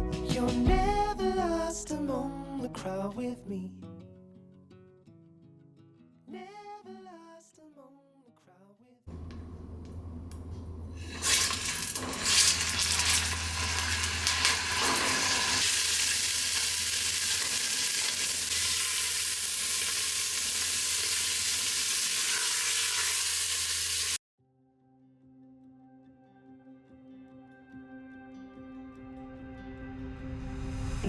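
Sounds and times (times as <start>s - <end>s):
food sizzling in a pan: 11.0s - 24.2s.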